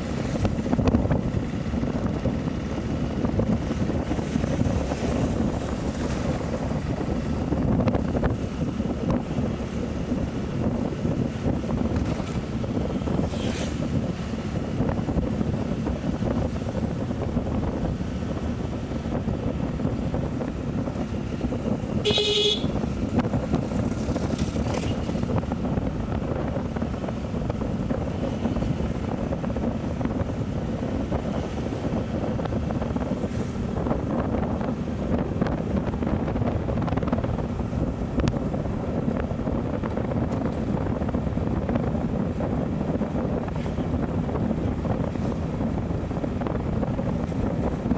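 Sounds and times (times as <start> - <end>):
motorcycle engine and road rumble: 0.0 - 47.9
wind noise on microphone: 0.0 - 47.9
vehicle horn toot: 22.0 - 22.8.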